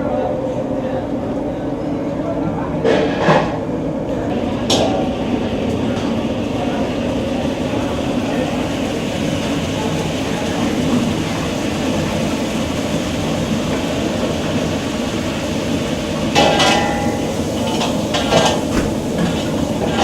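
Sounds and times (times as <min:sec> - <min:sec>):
metal cookware clanking: 0:17.8 - 0:19.5.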